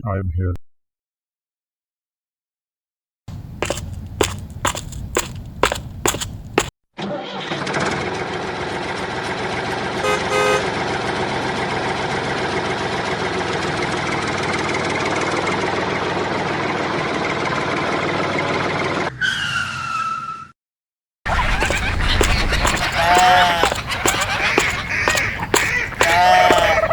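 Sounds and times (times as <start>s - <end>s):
horn toot: 25.8s - 26.9s.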